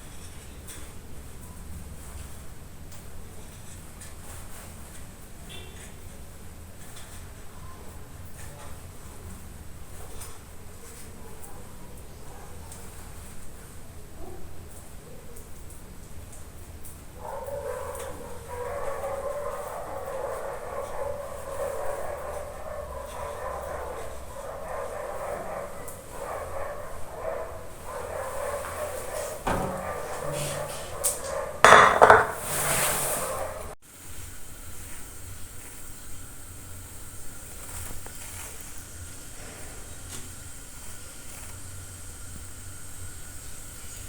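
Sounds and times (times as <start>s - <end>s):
utensils clattering against pots: 29.0s - 33.7s.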